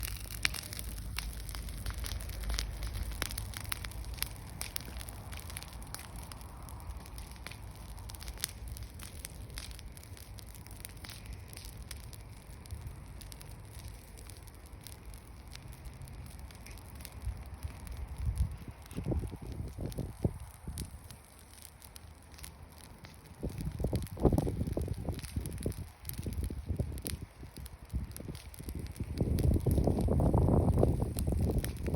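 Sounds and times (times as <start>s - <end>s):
bonfire crackling and popping: 0.0s - 31.9s
low fire rumble: 0.0s - 31.9s.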